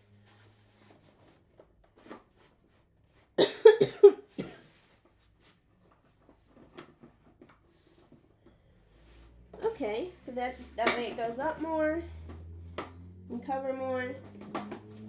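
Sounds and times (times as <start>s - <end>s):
person coughing: 3.4s - 4.7s.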